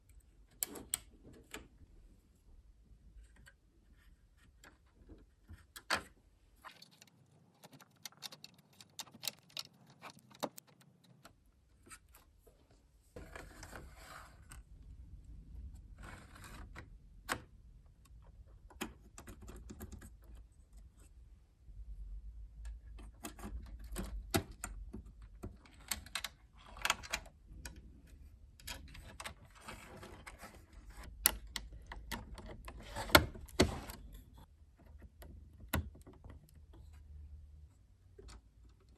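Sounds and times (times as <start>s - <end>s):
small parts clicking and rattling: 6.6s - 11.4s.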